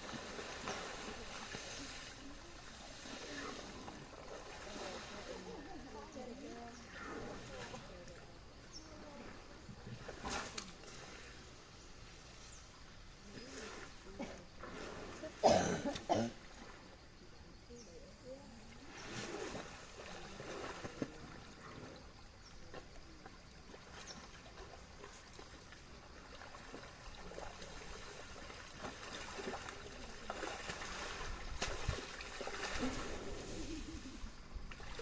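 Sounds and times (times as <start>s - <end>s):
mud splashing and slapping: 0.0s - 2.0s, 26.3s - 33.7s
water trickling: 14.8s - 33.4s.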